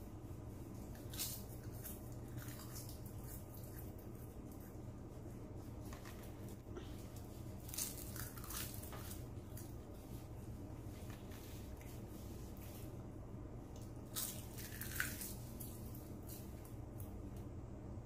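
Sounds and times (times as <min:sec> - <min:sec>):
faint low hum: 0:00.0 - 0:18.0
seaweed crunching while chewed: 0:00.9 - 0:04.7, 0:07.5 - 0:09.7, 0:13.8 - 0:16.7.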